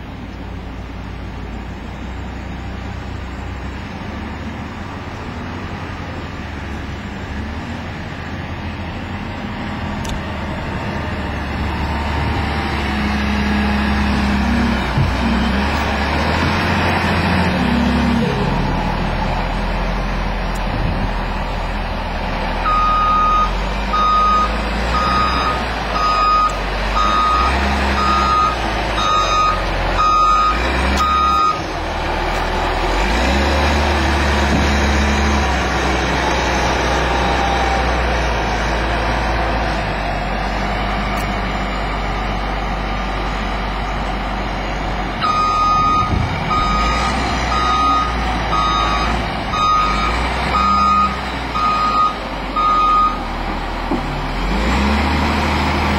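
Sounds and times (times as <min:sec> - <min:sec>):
heavy vehicle engine rumble: 0:00.0 - 0:55.9
reversing alarm beeping: 0:22.6 - 0:31.6, 0:45.2 - 0:53.2.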